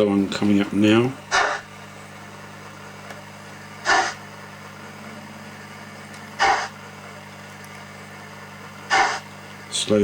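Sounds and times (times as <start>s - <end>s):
steady low hum: 0.0s - 10.0s
steam locomotive chuff: 1.3s - 1.7s, 3.8s - 4.2s, 6.4s - 6.7s, 8.9s - 9.2s.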